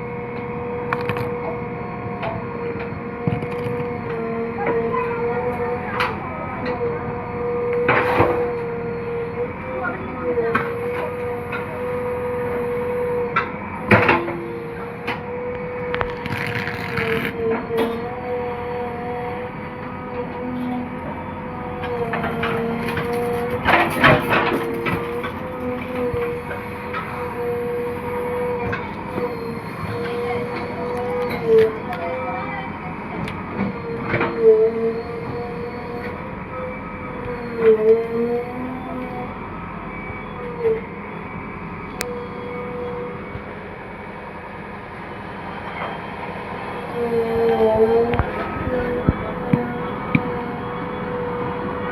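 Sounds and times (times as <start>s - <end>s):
backhoe engine and hydraulics whine: 0.0s - 51.9s
metal and earth clanking: 20.3s - 32.3s.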